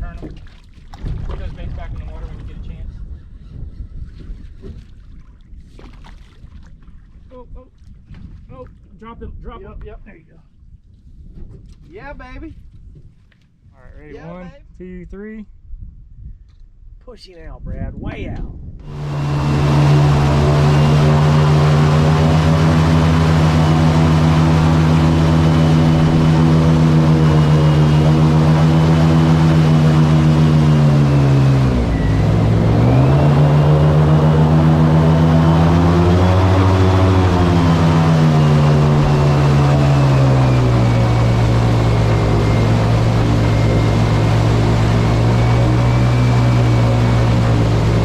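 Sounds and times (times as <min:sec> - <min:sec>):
outboard motor running: 0:00.0 - 0:02.9, 0:18.8 - 0:48.0.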